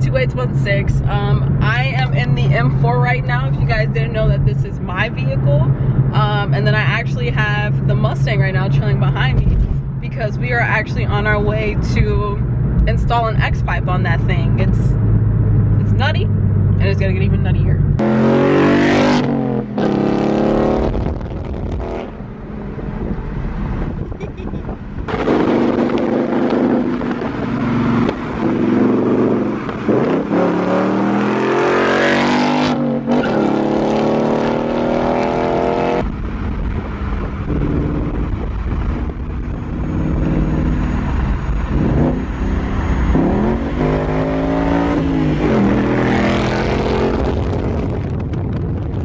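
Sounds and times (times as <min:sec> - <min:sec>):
car engine accelerating hard: 0:14.6 - 0:49.0.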